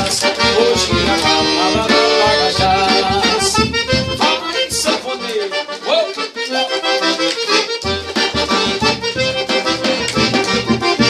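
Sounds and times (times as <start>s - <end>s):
bass and beat: 0.0s - 5.6s, 6.9s - 11.0s
accordion solo: 0.0s - 11.0s.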